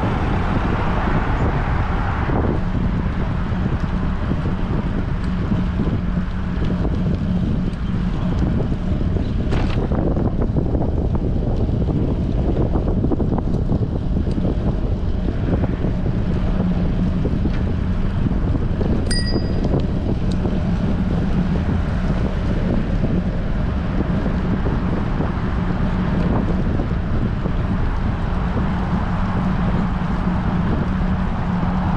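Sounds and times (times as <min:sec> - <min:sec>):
wind buffeting microphone: 0:00.0 - 0:31.9
high ringing tone: 0:19.1 - 0:19.8.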